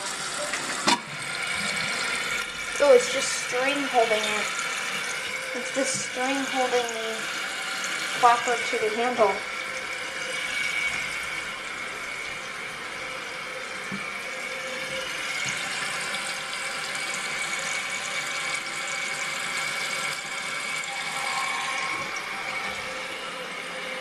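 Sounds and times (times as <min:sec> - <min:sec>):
toilet tank water hissing: 0:00.0 - 0:24.0
thin whistling tone: 0:20.7 - 0:24.0.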